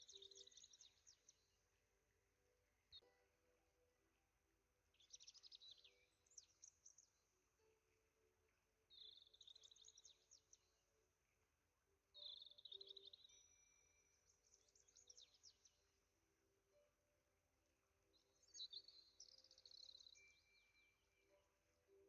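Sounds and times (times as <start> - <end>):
songbird twittering: 0.0 - 1.5, 12.1 - 15.9, 18.1 - 21.4
quiet steady background: 0.0 - 22.0.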